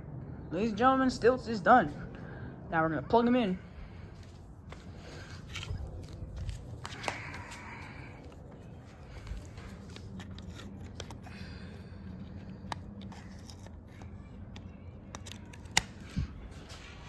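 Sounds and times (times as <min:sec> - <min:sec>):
faint low hum: 0:00.0 - 0:17.0
clicks and rustles of handling: 0:04.2 - 0:11.3.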